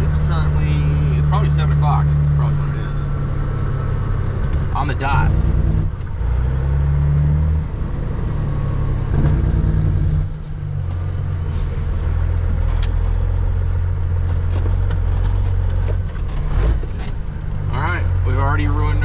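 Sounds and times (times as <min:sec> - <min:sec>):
diesel engine drone: 0:00.0 - 0:19.0
sharp click: 0:12.8 - 0:13.0.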